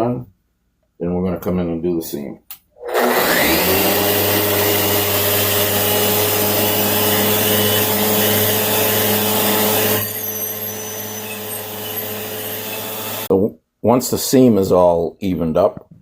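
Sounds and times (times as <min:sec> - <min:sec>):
electric sander motor: 0:02.8 - 0:13.3
sanding disc hissing: 0:05.3 - 0:13.3.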